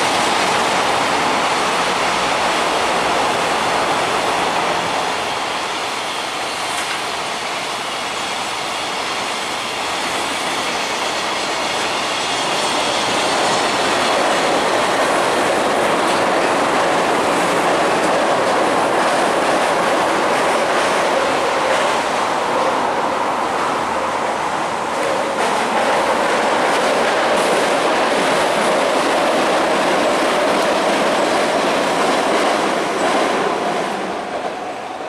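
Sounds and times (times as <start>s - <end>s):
freight train rolling: 0.0s - 35.0s
train crossing steel viaduct: 0.0s - 35.0s.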